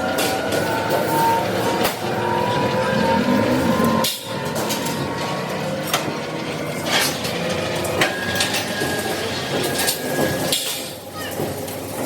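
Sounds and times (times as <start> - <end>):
machinery din: 0.0 - 11.7.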